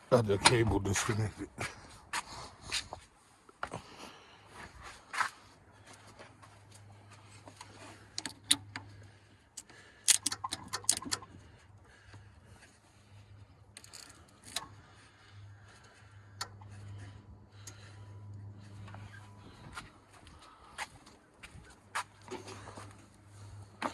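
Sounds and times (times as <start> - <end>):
light clicks and clinks: 7.6 - 9.0, 10.0 - 11.4, 13.7 - 14.8.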